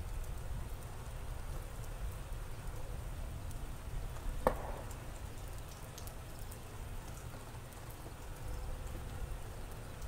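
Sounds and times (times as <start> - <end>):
rain falling on wet ground: 0.0 - 10.0
sharp tap: 4.4 - 5.0.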